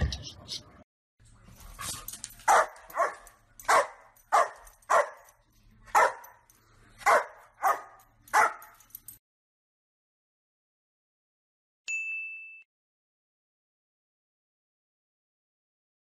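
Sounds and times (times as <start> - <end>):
dog barking: 2.4 - 8.8.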